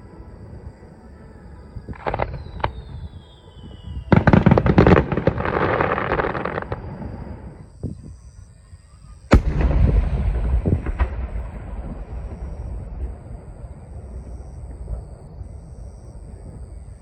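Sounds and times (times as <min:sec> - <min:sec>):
fireworks crackling: 0:01.9 - 0:07.5, 0:09.3 - 0:16.4
fireworks loud bangs: 0:02.0 - 0:07.4, 0:09.3 - 0:16.4
rumble: 0:09.3 - 0:17.0.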